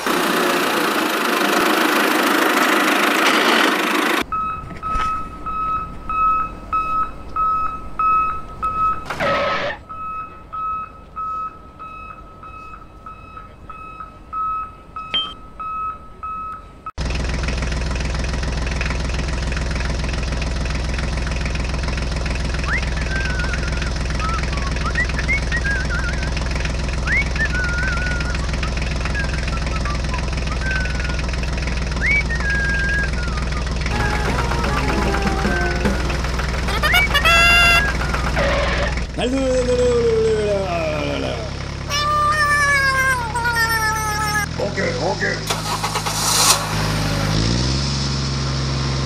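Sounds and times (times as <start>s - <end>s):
tractor engine running: 0.0s - 49.0s
reversing alarm beeping: 4.3s - 17.0s
short whoosh: 45.8s - 48.4s.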